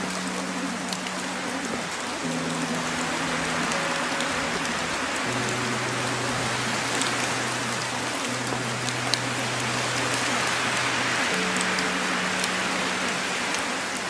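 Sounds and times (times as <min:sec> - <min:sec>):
low sustained tones: 0:00.0 - 0:14.0
rain sound backing track: 0:00.0 - 0:14.0.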